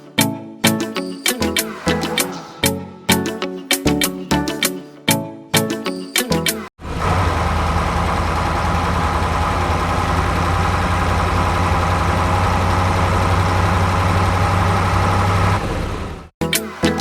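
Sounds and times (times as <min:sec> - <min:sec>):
music: 0:00.0 - 0:06.7, 0:16.4 - 0:17.0
tractor engine idling: 0:06.8 - 0:16.3.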